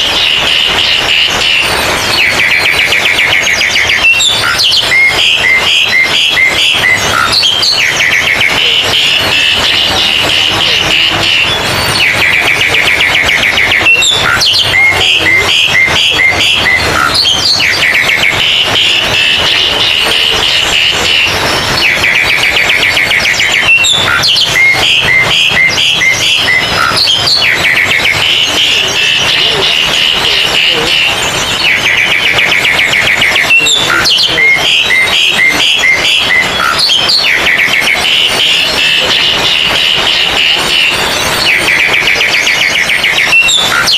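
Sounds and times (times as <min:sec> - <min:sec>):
magpie-robins singing: 0:00.0 - 0:43.9.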